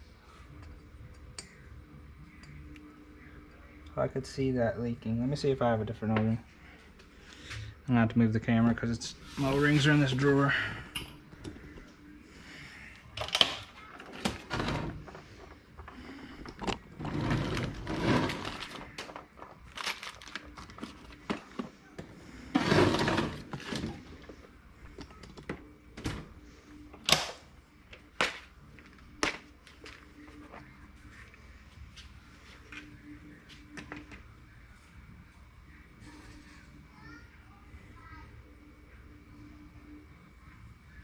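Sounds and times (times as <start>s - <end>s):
scraping and rustling: 14.0s - 24.4s.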